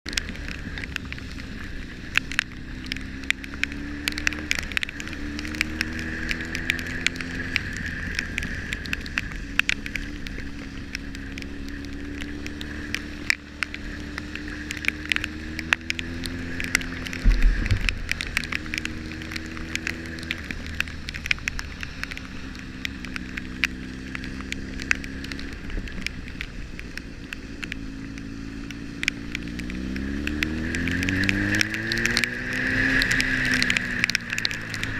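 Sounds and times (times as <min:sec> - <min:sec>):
motorcycle engine shifting gears: 0:00.1 - 0:34.9
rain ticking on camera: 0:00.1 - 0:34.9
heavy low thump: 0:17.2 - 0:18.1.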